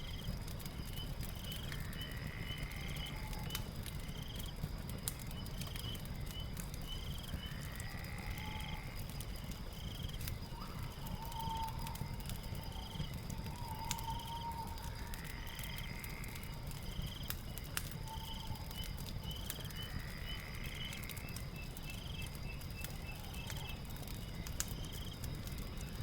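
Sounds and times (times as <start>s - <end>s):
fireplace crackling: 0.0s - 26.0s
chirping creatures trilling: 14.6s - 26.0s.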